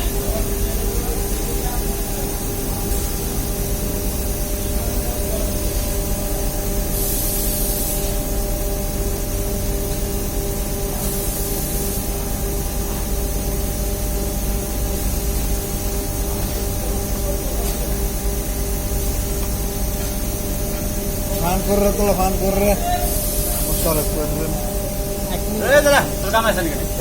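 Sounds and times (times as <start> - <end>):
machinery rumble and hum: 0.0 - 27.0
even hiss: 21.3 - 27.0.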